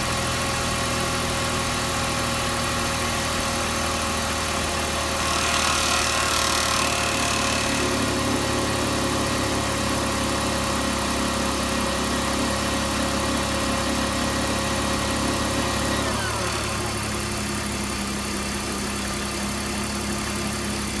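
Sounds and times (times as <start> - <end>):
car engine idling: 8.1 - 21.0.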